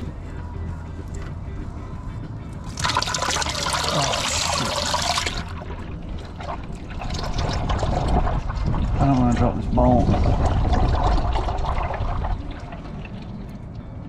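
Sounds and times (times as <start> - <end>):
liquid trickling: 2.6 - 13.8
liquid rushing and splashing: 2.7 - 9.3, 10.1 - 13.4.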